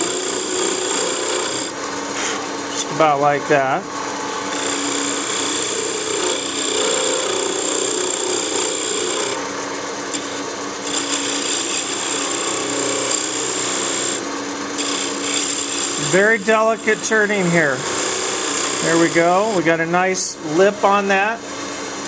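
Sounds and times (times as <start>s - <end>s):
chisel scraping spinning wood: 0.0s - 3.2s, 4.4s - 9.4s, 10.2s - 14.2s, 14.8s - 19.6s
lathe motor hum: 0.0s - 19.9s.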